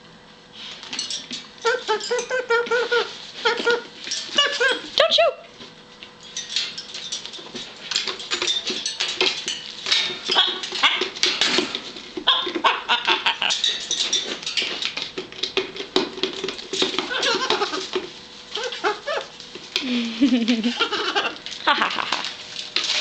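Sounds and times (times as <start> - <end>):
parrot chattering: 1.6 - 3.8, 12.3 - 13.6.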